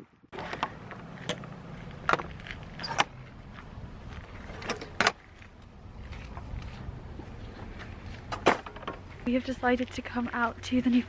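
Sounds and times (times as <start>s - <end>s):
car rumbling: 0.1s - 11.0s
sharp clicks and knocks: 0.4s - 3.2s.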